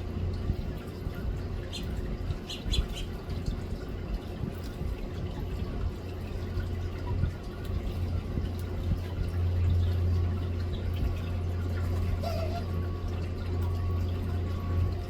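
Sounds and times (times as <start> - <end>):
steady low hum: 0.0 - 15.0
finches chirping: 1.6 - 3.2.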